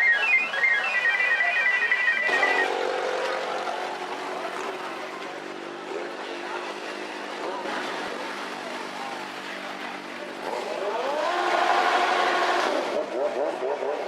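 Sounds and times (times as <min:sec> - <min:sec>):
high electronic beeping melody: 0:00.0 - 0:02.8.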